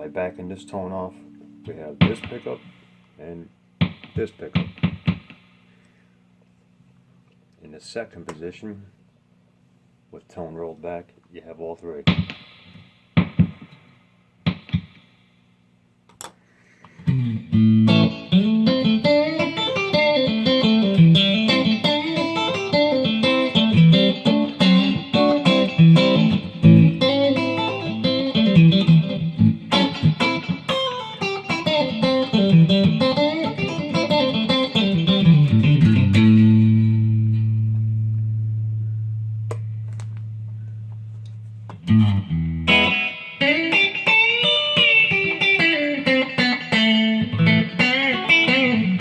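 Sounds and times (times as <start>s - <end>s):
electric guitar notes and chords: 0.0s - 2.8s, 17.0s - 49.0s.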